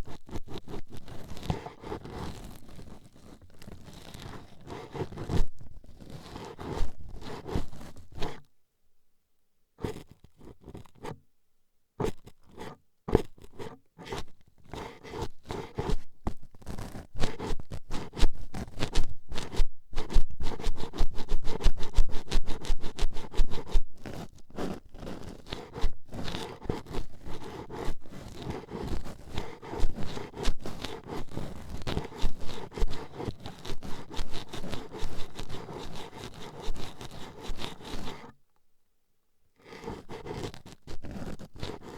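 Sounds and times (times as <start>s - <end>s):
toothpicks scraping microphone: 13.1s - 38.2s.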